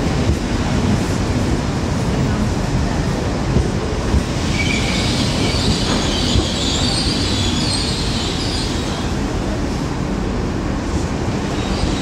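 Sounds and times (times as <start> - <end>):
train wheels rumbling: 0.0 - 12.0
high squeal: 4.5 - 9.1.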